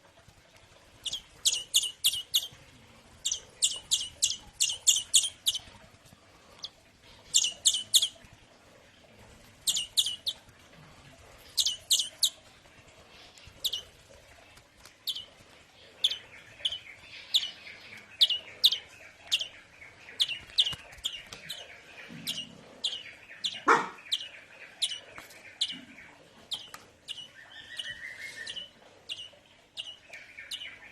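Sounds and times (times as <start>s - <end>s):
bird chick cheeping: 3.2s - 5.6s, 6.6s - 8.2s, 9.7s - 10.4s, 11.6s - 12.4s, 13.6s - 13.9s, 20.1s - 30.8s.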